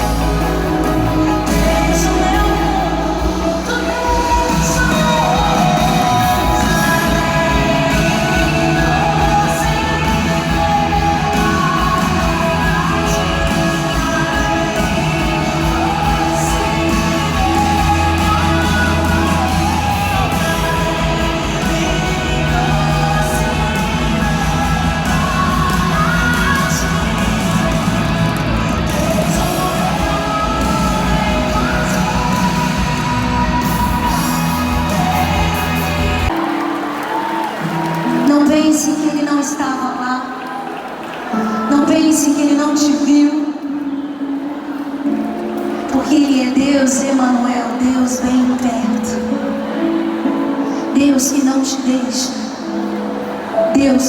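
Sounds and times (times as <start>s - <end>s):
steady bass: 0.0s - 36.3s
sustained keys or guitar: 0.0s - 38.2s
person singing: 0.0s - 40.6s
worship band playing slow song: 0.0s - 54.0s.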